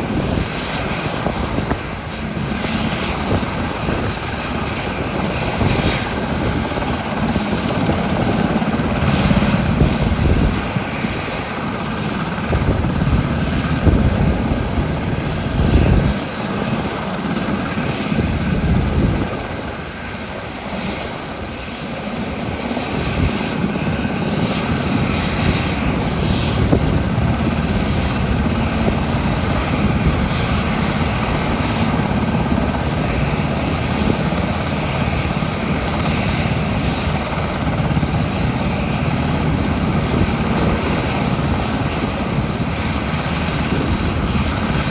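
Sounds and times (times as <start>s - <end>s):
helicopter rotor and engines drone: 0.0s - 44.9s.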